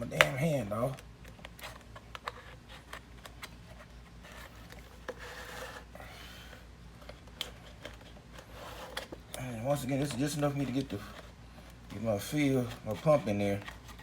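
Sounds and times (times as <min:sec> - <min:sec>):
blade scraping through plastic: 0:01.5 - 0:11.4.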